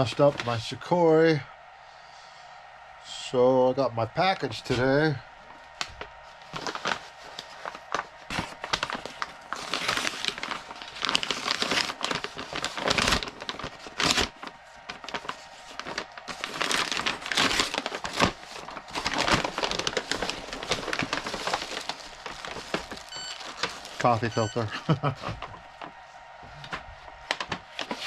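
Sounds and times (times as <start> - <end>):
packaging crinkling and rustling: 0.0 - 0.8, 5.6 - 26.0, 26.6 - 28.0
packaging ripping: 5.8 - 24.7, 27.2 - 28.0.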